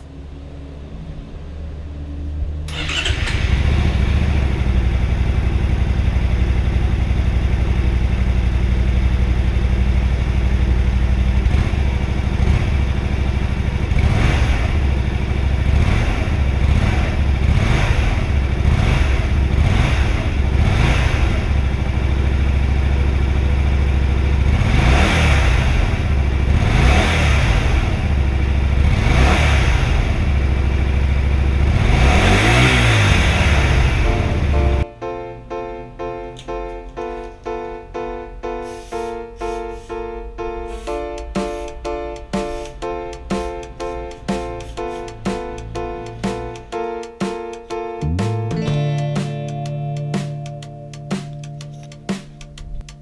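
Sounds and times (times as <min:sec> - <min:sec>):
motorcycle engine starting and idling: 0:00.0 - 0:34.8
engine throttle blips: 0:00.0 - 0:34.9, 0:40.2 - 0:53.0.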